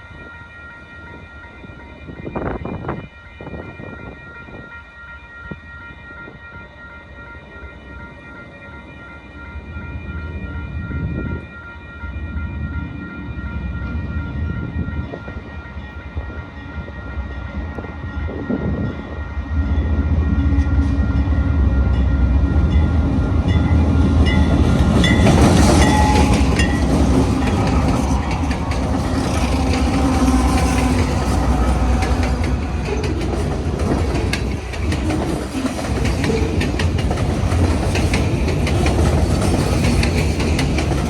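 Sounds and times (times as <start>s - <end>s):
train passing with deep rumble: 0.0s - 41.0s
wheels running on rails: 23.5s - 41.0s.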